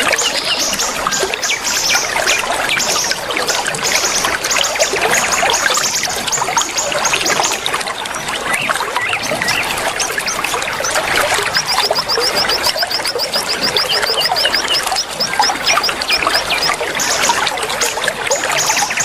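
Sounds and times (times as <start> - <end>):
trickling water: 0.0 - 19.0
songbirds chirping and twittering: 5.8 - 19.0
bird fast high trill: 10.8 - 16.9.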